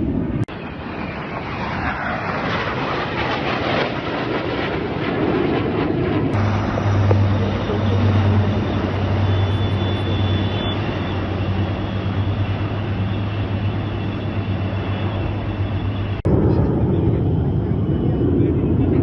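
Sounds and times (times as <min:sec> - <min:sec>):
aircraft engine rushing: 0:00.0 - 0:19.0
low hum: 0:00.0 - 0:19.0.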